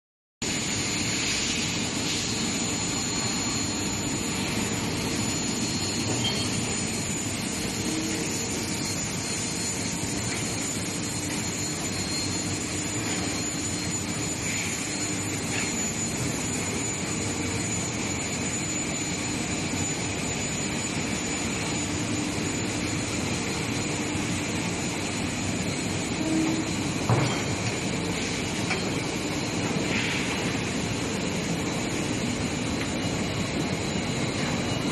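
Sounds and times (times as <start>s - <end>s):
high-pitched whine: 0.4s - 34.9s
industrial roar: 0.4s - 34.9s.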